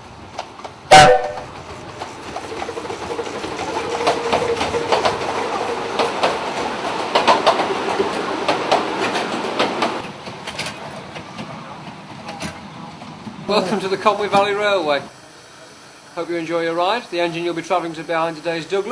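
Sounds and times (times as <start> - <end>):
train wheel noise: 0.0 - 18.9
clicks over rail joints: 0.3 - 13.3.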